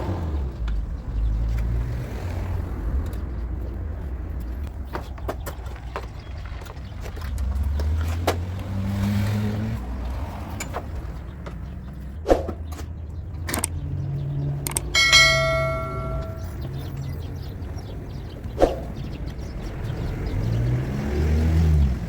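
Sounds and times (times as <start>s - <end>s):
metal ringing: 14.7s - 16.7s.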